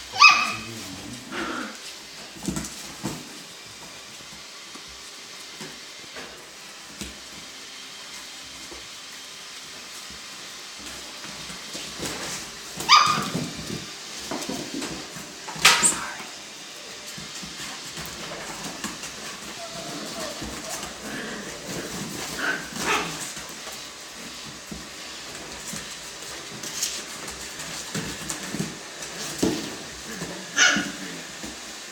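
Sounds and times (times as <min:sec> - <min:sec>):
high-pitched puppy yelps: 0:00.1 - 0:00.7, 0:12.8 - 0:13.4, 0:30.6 - 0:31.0
puppies whimpering and yipping: 0:19.2 - 0:23.3.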